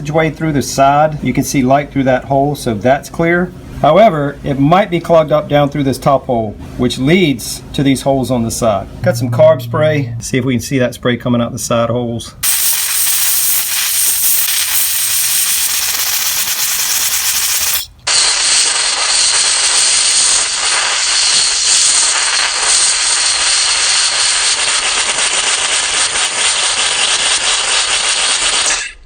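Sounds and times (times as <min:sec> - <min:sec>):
aerosol spray hissing: 0:12.4 - 0:29.0.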